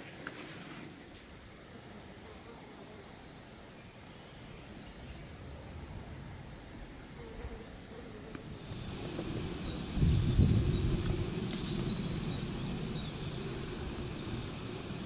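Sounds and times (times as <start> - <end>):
songbirds chirping and trilling: 3.2 - 5.9, 8.3 - 15.0
low rumble: 8.6 - 14.7.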